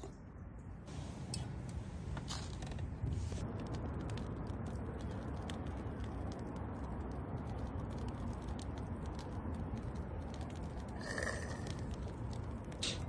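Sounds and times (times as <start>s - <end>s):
low steady rumble: 0.0s - 13.0s
firewood crackling and popping: 3.4s - 13.0s.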